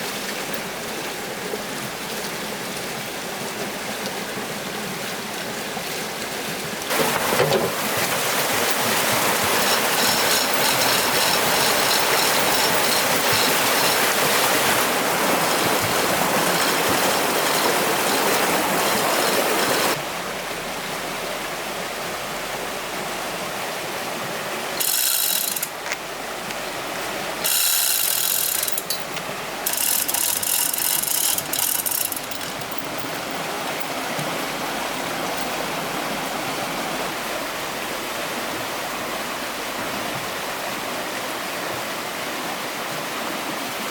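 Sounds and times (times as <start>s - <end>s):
water rushing: 0.0s - 43.9s
ratchet-like mechanical clicking: 8.7s - 14.9s, 24.8s - 26.0s, 27.4s - 33.4s.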